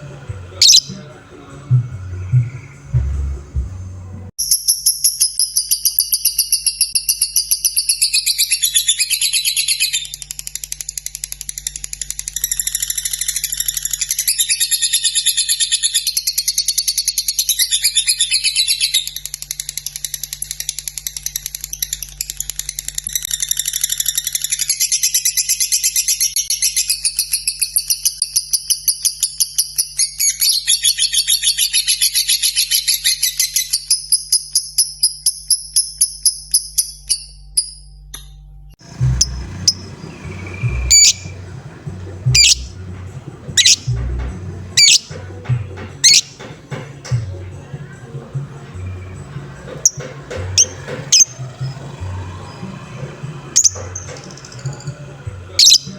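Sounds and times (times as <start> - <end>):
lovebird chattering chirps: 0.6 - 1.1, 38.9 - 42.8, 43.6 - 44.0, 44.7 - 45.2, 46.0 - 46.4, 55.6 - 55.9.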